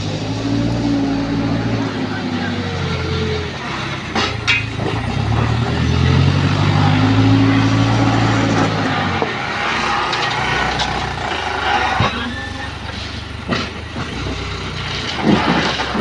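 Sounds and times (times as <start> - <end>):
diesel engine revving under load: 0.0 - 16.0
sharp metal clanks: 4.1 - 5.5, 9.2 - 16.0.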